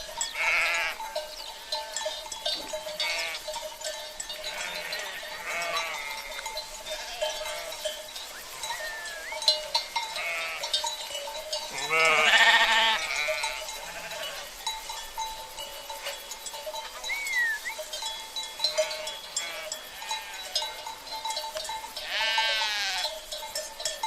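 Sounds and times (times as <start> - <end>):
cowbells clinking: 0.0 - 24.0
sheep bleating: 0.4 - 1.0, 3.0 - 3.5, 4.4 - 7.8, 8.6 - 9.4, 10.0 - 10.8, 11.7 - 14.5, 18.7 - 20.8, 22.0 - 23.1.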